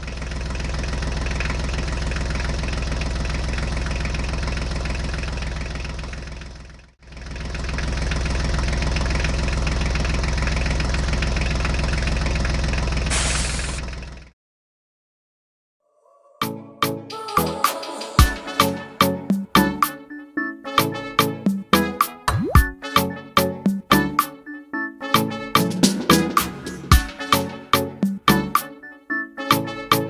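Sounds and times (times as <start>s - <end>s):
engine running: 0.0s - 14.3s, 25.8s - 27.0s
brief hiss: 13.1s - 13.8s.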